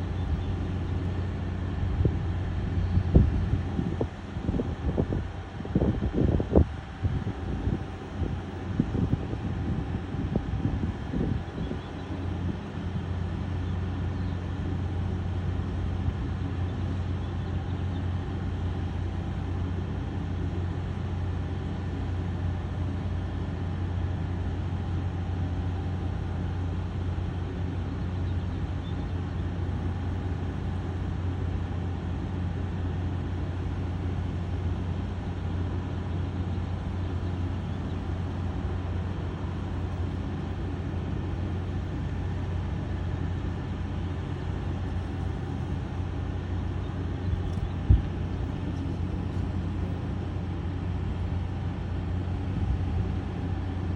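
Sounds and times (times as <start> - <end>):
helicopter running: 37.5 - 53.6.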